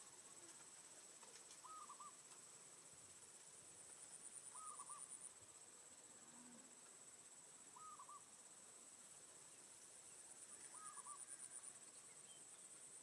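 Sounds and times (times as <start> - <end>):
insect chorus buzzing: 0.0 - 13.0
warbled bird call: 1.6 - 2.2, 4.5 - 5.1, 7.7 - 8.3, 10.7 - 11.5.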